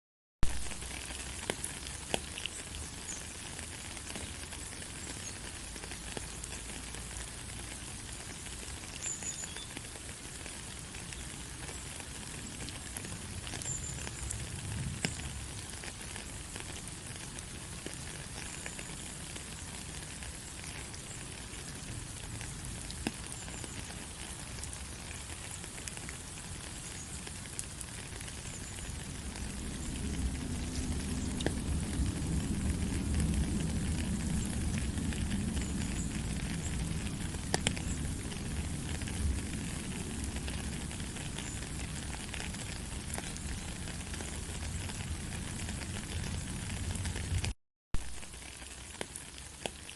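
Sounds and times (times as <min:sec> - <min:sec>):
rain pattering on surfaces: 0:00.4 - 0:49.9
low rumble: 0:29.0 - 0:40.8.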